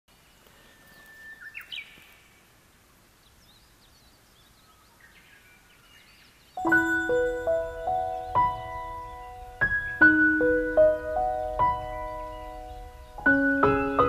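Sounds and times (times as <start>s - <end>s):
songbirds singing: 0.1s - 14.0s
bird whistle with rising notes: 6.6s - 10.7s.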